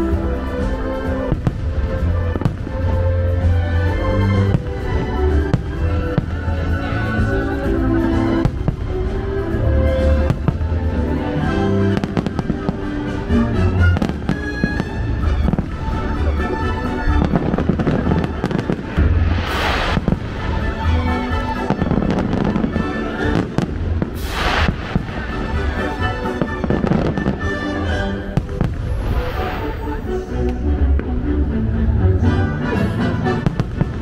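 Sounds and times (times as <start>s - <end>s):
fireworks bangs and crackles: 0.0s - 30.0s, 33.3s - 34.0s
music: 0.0s - 34.0s
fireworks hissing: 12.0s - 30.4s.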